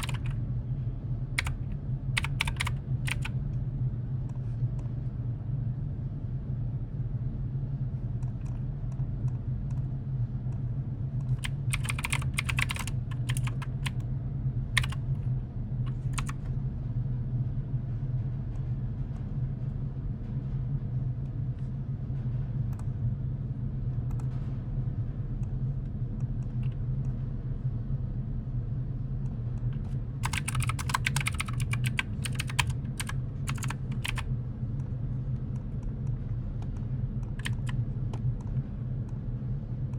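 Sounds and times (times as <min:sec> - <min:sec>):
computer keyboard typing: 0:00.0 - 0:00.4, 0:01.4 - 0:03.4, 0:11.3 - 0:14.0, 0:14.8 - 0:15.0, 0:15.9 - 0:16.4, 0:29.8 - 0:34.3, 0:37.3 - 0:37.8
steady low hum: 0:00.0 - 0:39.9.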